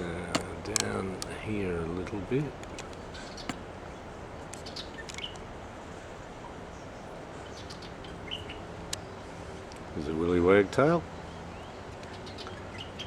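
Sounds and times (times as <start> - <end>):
birds chirping: 0.0 - 9.2
steady background noise: 0.0 - 13.0.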